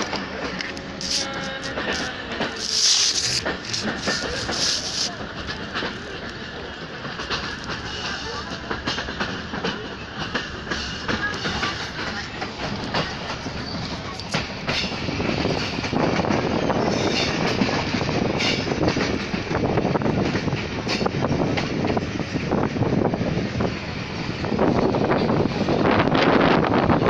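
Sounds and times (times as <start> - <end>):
wheels clicking over rail joints: 0.0 - 22.8
train wheels rumbling: 0.0 - 27.0.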